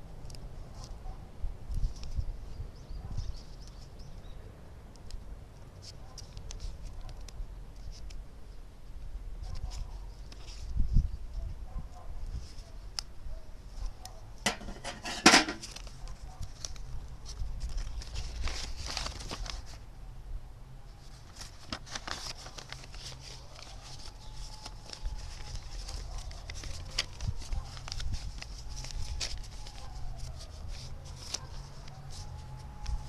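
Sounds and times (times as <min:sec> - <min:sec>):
metal scraping: 0:14.4 - 0:15.7
sharp metal clank: 0:14.5 - 0:15.6
snips and clicks on metal tin: 0:14.5 - 0:15.7.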